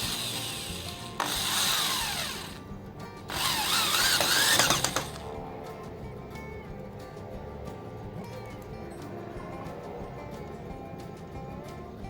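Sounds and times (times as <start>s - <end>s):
power drill running: 0.0s - 2.6s, 3.3s - 5.3s
background music: 0.0s - 12.0s.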